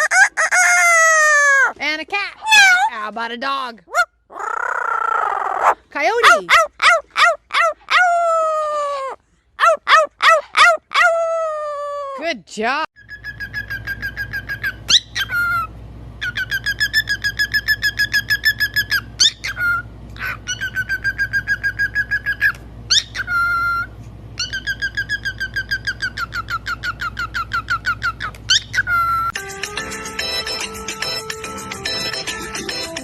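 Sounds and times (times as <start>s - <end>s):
parrot whistling trills: 13.0s - 29.4s.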